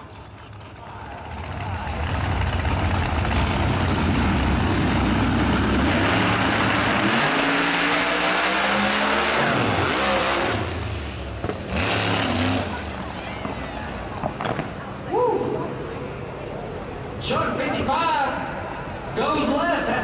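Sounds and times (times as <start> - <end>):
racing car engine at full throttle: 0.0 - 13.5.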